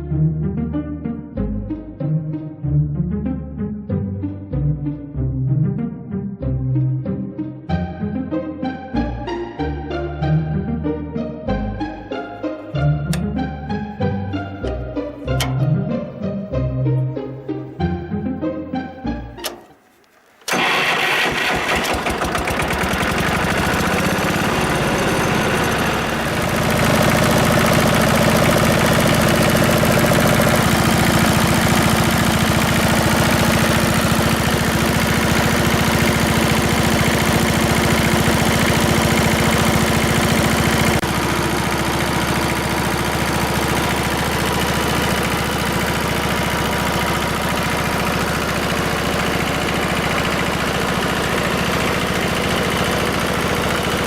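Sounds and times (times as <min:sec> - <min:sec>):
tractor engine idling: 0:11.8 - 0:16.4, 0:18.8 - 0:54.0.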